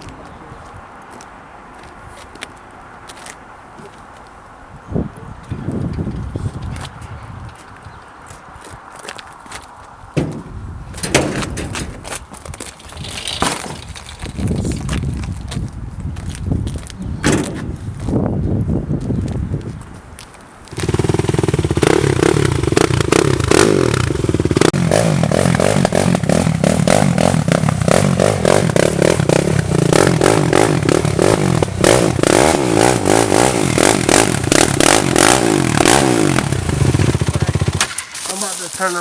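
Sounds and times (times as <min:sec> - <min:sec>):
rattling and scraping: 0:10.2 - 0:15.4, 0:17.2 - 0:17.8
atv engine revving: 0:20.7 - 0:38.2.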